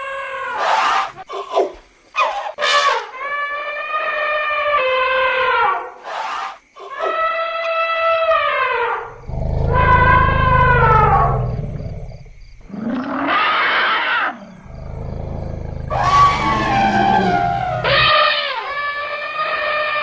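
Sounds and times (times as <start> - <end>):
elephants trumpeting: 14.6 - 18.8.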